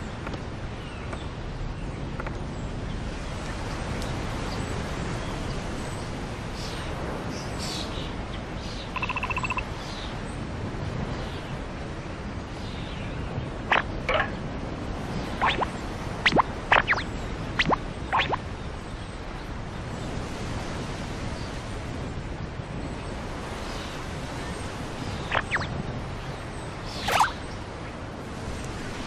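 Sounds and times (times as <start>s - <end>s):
bird chirps: 8.9s - 9.6s, 13.7s - 14.4s, 15.4s - 18.4s, 25.2s - 25.7s, 26.9s - 27.4s.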